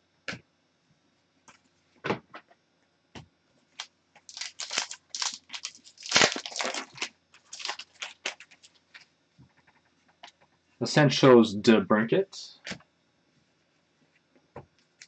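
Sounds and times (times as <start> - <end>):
wrapper crinkling and tearing: 3.8 - 9.1.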